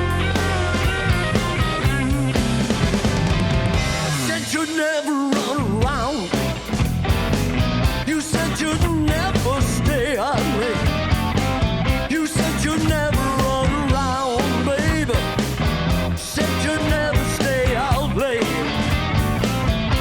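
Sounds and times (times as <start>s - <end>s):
bending lead guitar line: 0.0s - 20.0s
blues band playing live: 0.0s - 20.0s.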